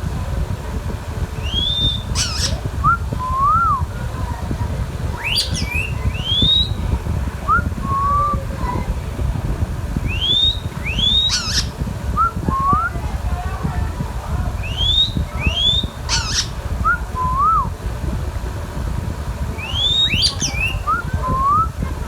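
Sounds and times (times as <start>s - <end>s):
steady low rumble: 0.0s - 22.0s
parrot whistling: 1.4s - 3.8s, 5.2s - 6.8s, 10.1s - 13.0s, 14.6s - 17.7s, 19.6s - 21.7s
parrot screeching: 1.5s - 2.6s, 11.0s - 11.7s, 16.1s - 16.6s, 19.8s - 20.8s.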